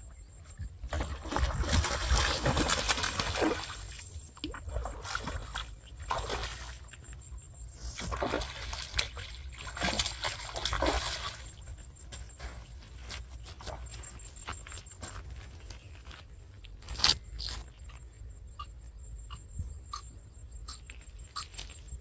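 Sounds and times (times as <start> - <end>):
water splashing and sloshing: 0.5 - 14.7.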